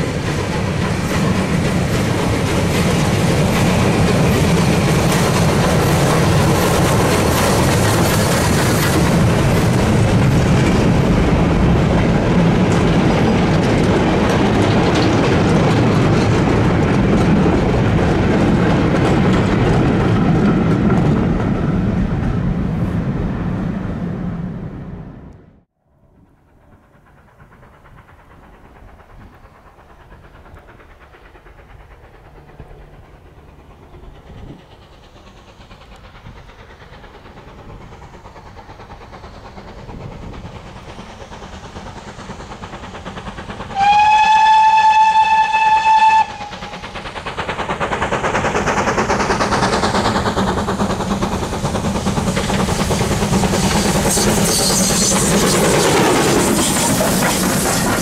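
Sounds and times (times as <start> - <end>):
train running noise: 0.0 - 58.0
steam locomotive whistle: 43.7 - 46.7, 53.6 - 56.0.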